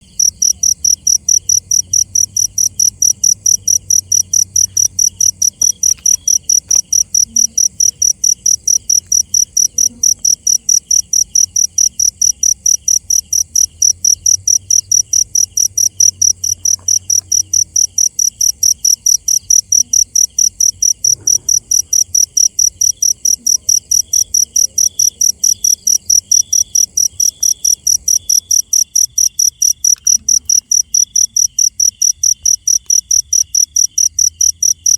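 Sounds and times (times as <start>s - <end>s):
cricket chirping: 0.0s - 34.9s
lower pulsed insect or frog call: 0.0s - 34.9s.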